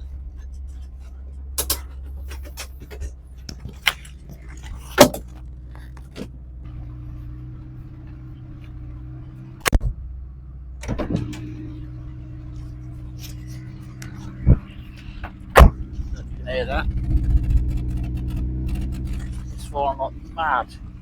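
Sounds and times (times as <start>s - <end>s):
car engine misfiring: 0.0s - 21.0s
sharp clicks and knocks: 0.5s - 6.3s.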